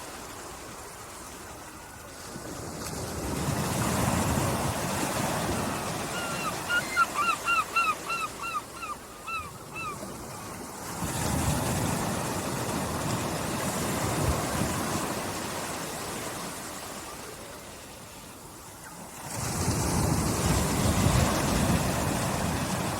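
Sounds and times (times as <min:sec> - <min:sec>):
small waves lapping on beach: 0:00.0 - 0:22.9
bird calling rapidly: 0:06.1 - 0:10.0.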